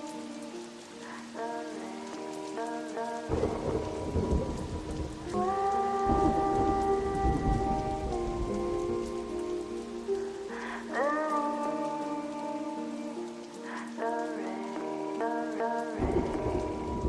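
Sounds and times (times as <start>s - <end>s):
steady rain: 0.0s - 17.0s
rolls of thunder: 3.3s - 9.2s.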